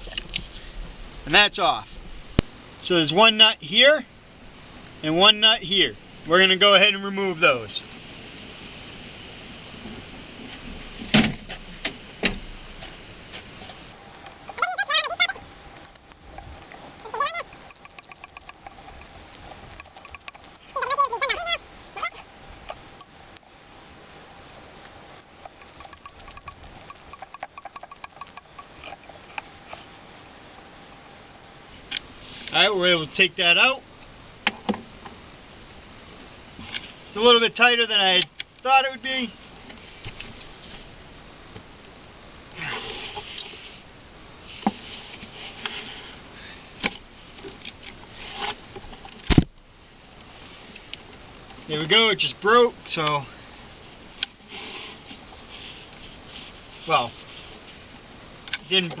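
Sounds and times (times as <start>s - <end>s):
ratchet wrench clicking: 15.8s - 20.8s, 25.2s - 29.2s.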